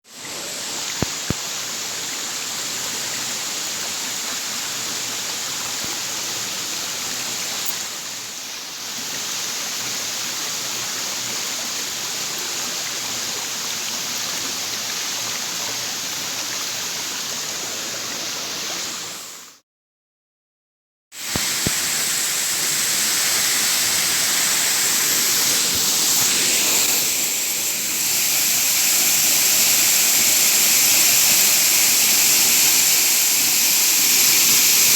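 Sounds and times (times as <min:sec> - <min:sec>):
waterfall rushing: 0:21.2 - 0:34.9.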